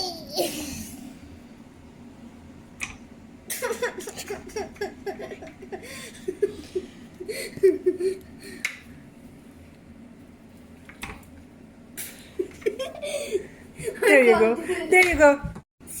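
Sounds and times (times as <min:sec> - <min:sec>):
child giggling and laughing: 0:00.0 - 0:00.9, 0:03.6 - 0:08.2, 0:12.4 - 0:14.9.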